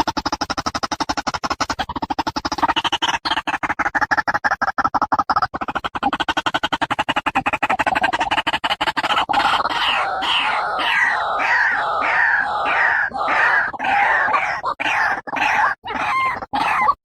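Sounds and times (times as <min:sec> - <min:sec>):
waterhen calling: 0:09.3 - 0:17.0.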